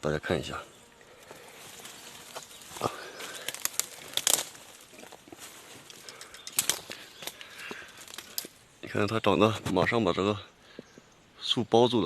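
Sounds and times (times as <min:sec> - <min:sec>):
dry leaves and twigs crackling underfoot: 0:01.0 - 0:09.2.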